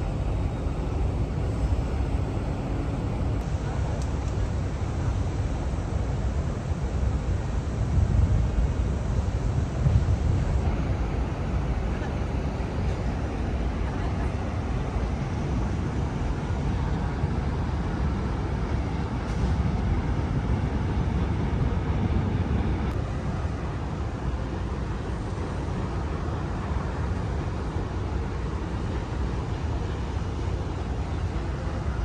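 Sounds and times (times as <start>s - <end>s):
distant traffic: 0.0s - 14.0s
wind rumble on microphone: 0.0s - 23.0s.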